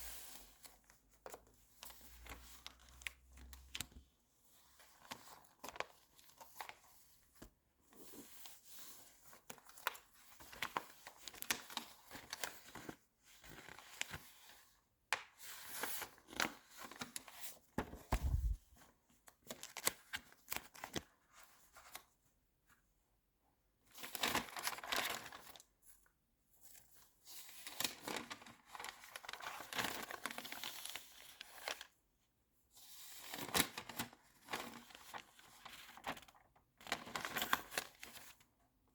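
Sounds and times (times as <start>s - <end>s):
magazine pages rustling: 16.8s - 18.7s.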